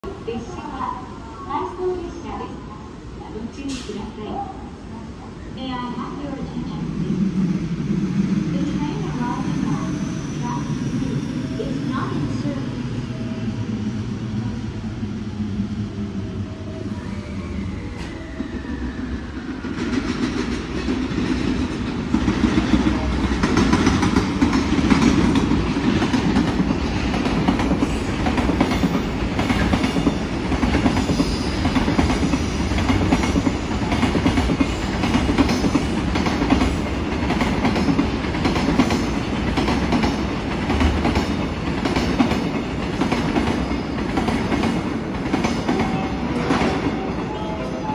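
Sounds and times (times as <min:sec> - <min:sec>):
freight train wheels clickety-clack: 0:19.5 - 0:47.9.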